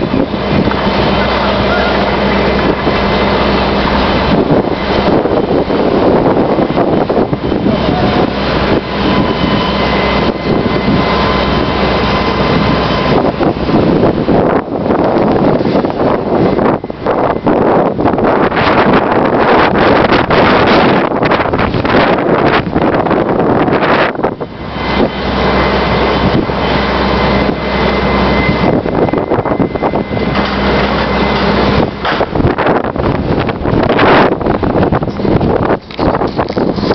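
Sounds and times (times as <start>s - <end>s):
vehicle engine running: 0.0s - 17.0s
vehicle engine hum: 0.0s - 36.9s
wind gusting on microphone: 0.0s - 36.9s.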